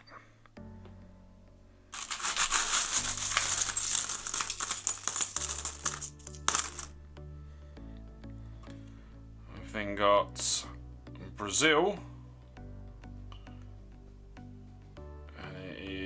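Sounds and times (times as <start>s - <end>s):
soft background music: 0.0s - 16.0s
metal coins clinking: 2.0s - 7.0s.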